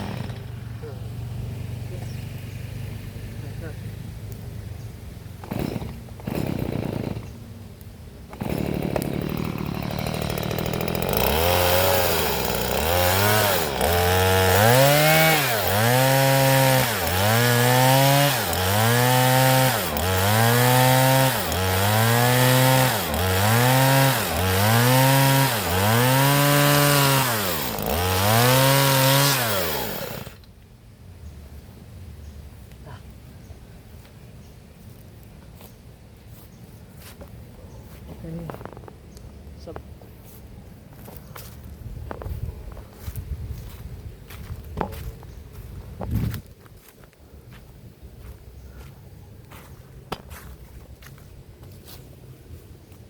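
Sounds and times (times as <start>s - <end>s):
chainsaw cutting wood: 0.0s - 0.8s, 5.4s - 7.4s, 8.2s - 30.5s.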